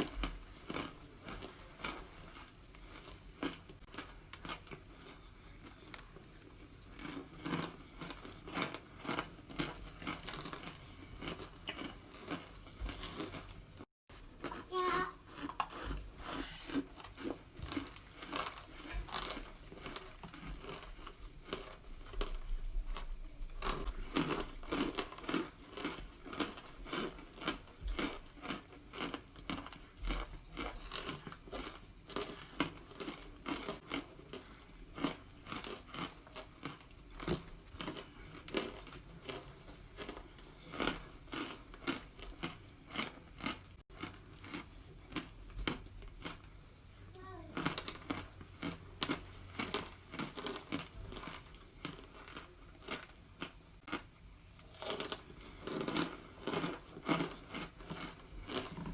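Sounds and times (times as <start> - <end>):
crisp chewing crunches: 0.0 - 58.9.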